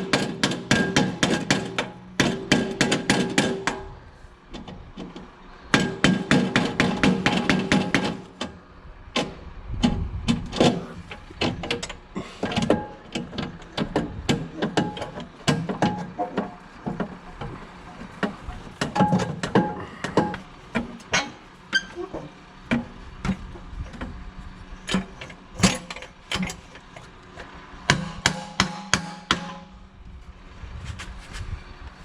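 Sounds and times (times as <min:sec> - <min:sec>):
hand tools knocking on metal: 0:00.0 - 0:03.9, 0:05.0 - 0:08.5, 0:09.2 - 0:24.0, 0:27.9 - 0:29.7.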